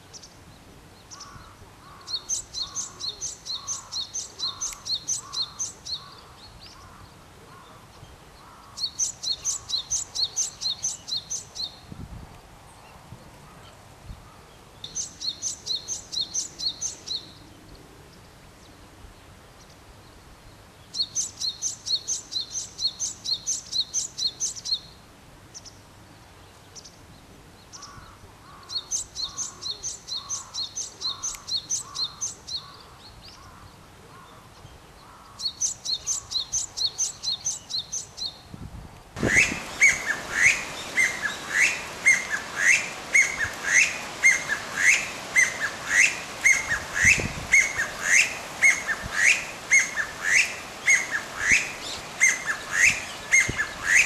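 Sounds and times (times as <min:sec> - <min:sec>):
background hiss: 0:00.0 - 0:54.0
songbirds repeating high notes: 0:39.2 - 0:54.0.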